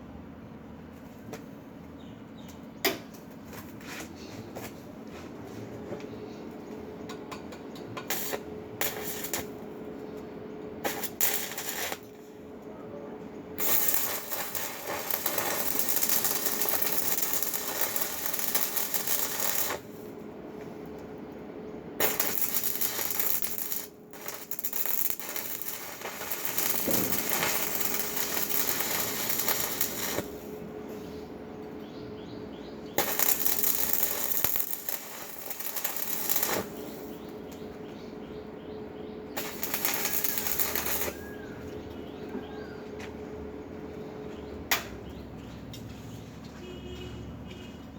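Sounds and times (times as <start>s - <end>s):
steady hum: 8.0s - 45.2s
welding arc crackling: 8.1s - 9.6s, 10.8s - 12.3s, 13.6s - 20.1s, 22.0s - 30.7s, 32.8s - 37.4s, 39.4s - 41.6s.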